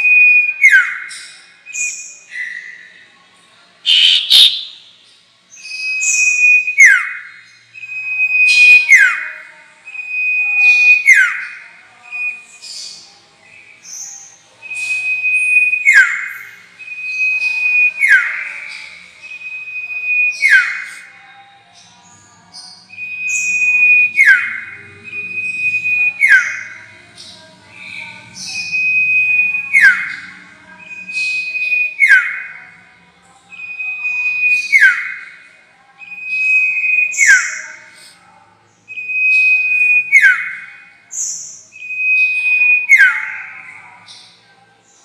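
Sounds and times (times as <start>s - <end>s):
bird whistle with downward slur: 3.9s - 4.8s
short high bird chips: 3.9s - 4.8s.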